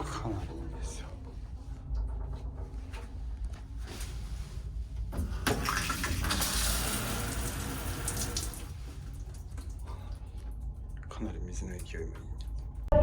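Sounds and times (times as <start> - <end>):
water running from tap: 5.2 - 10.0.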